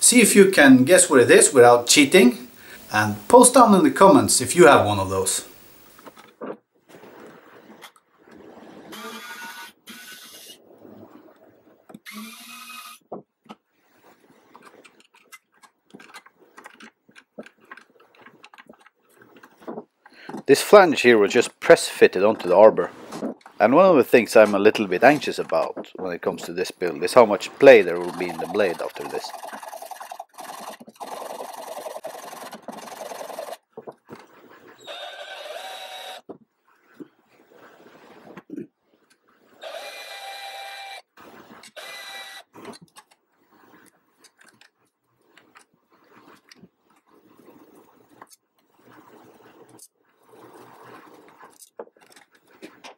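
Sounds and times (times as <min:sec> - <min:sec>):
small power tool motor: 0:08.9 - 0:10.6, 0:12.0 - 0:13.0, 0:29.3 - 0:33.6, 0:34.8 - 0:36.2, 0:39.6 - 0:42.5
hand tool rasping scrape: 0:27.7 - 0:33.6.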